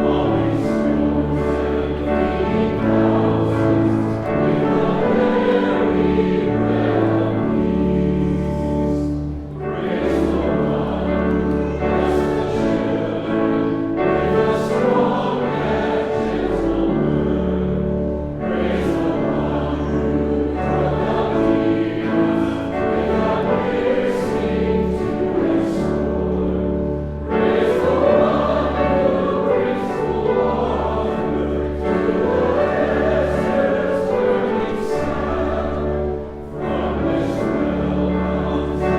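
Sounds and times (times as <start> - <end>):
congregation singing a hymn: 0.0 - 38.9.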